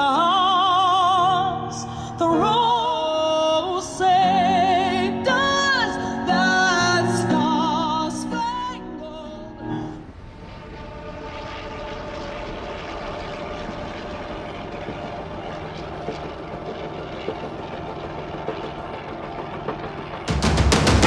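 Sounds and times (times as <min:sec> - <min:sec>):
propeller aircraft engine: 0:09.8 - 0:21.0
loud music: 0:15.8 - 0:21.0.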